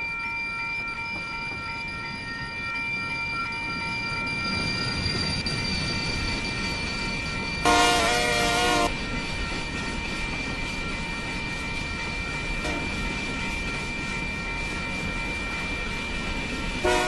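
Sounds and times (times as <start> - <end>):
freight train rumble: 0.9 - 17.0
locomotive horn: 7.6 - 8.9.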